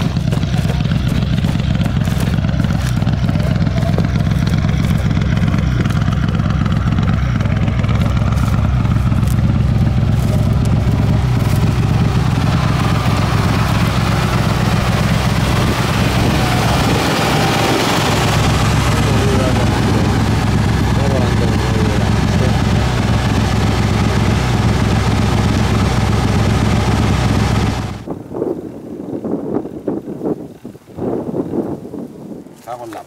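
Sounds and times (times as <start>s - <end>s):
car engine idling: 0.0s - 28.1s.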